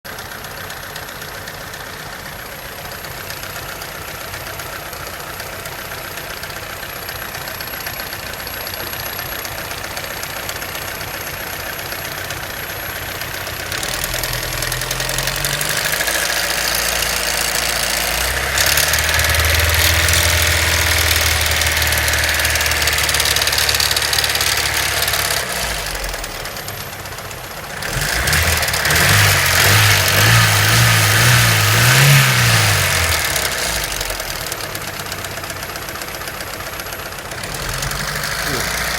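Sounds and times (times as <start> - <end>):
engine knocking: 0.0 - 38.9
car engine idling and revving: 0.1 - 38.9.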